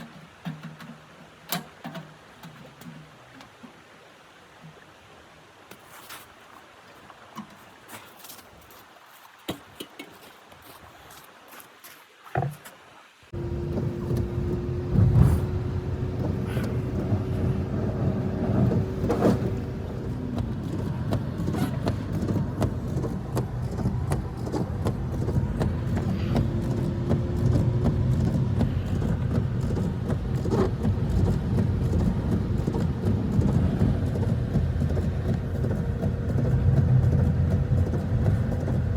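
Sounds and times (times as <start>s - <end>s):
engine running: 13.3s - 38.9s.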